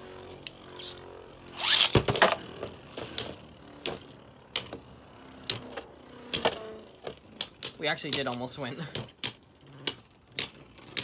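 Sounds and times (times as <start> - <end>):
launcher ripping whirr: 0.3 - 3.5.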